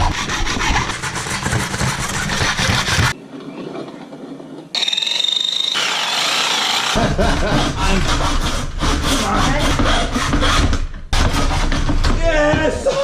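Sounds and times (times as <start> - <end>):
rasping sawing strokes on metal: 0.0 - 3.2, 5.7 - 12.0
power tool squealing on metal: 4.8 - 7.0.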